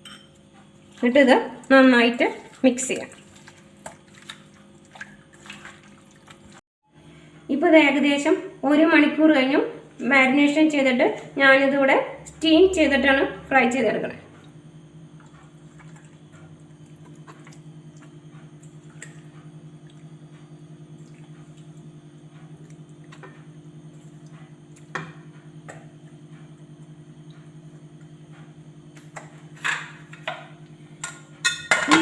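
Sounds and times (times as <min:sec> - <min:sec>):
steady low hum: 0:06.9 - 0:32.0.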